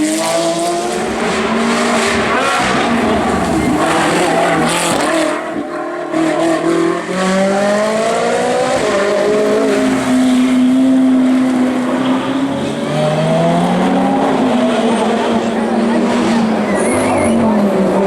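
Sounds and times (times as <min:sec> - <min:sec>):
race car engine accelerating: 0:00.0 - 0:18.0.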